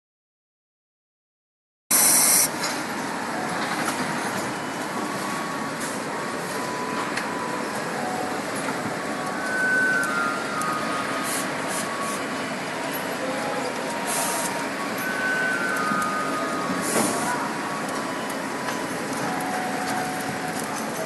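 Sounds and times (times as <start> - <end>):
short loud hiss: 1.9 - 2.5
steady machine noise: 1.9 - 21.0.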